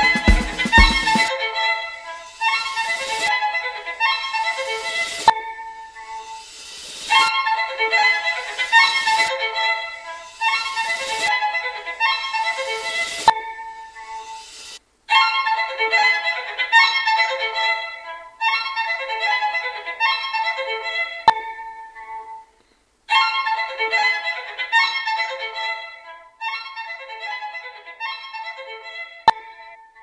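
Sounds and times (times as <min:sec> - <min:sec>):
violin music: 0:00.0 - 0:01.4.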